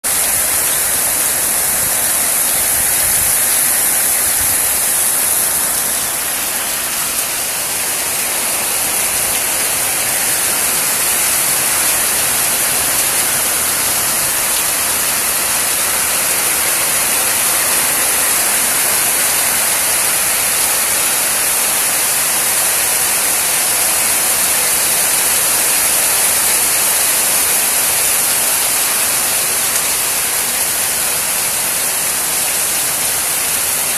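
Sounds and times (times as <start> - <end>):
steady rainfall: 0.0 - 33.9.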